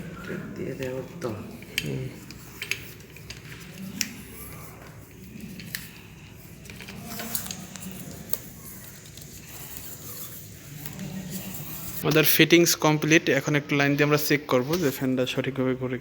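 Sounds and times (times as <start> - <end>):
tape crinkling and rubbing: 0.0 - 12.2.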